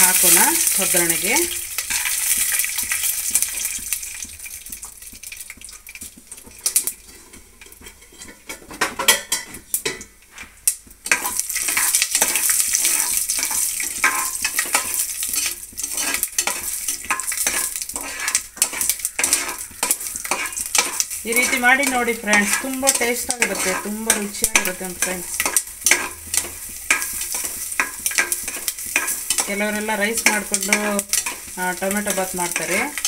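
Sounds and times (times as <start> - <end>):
peanuts sizzling in hot oil: 0.0 - 33.0
metal spoon scraping pot: 6.7 - 9.5, 11.1 - 33.0.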